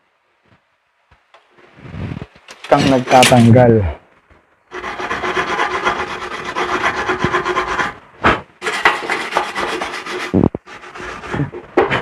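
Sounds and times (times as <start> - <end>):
hand tool scraping metal tank: 4.8 - 8.0, 8.6 - 12.0.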